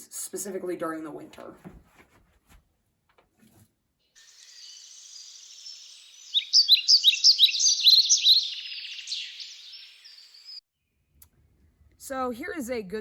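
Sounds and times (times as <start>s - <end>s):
bird high rapid trill: 4.2s - 10.6s
bird sharp descending notes: 4.2s - 10.6s.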